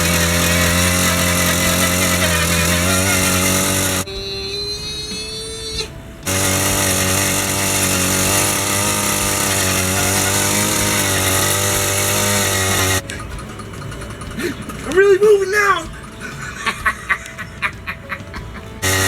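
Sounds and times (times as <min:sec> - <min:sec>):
two-stroke engine buzzing: 0:00.0 - 0:04.2, 0:06.0 - 0:15.0, 0:18.8 - 0:19.0.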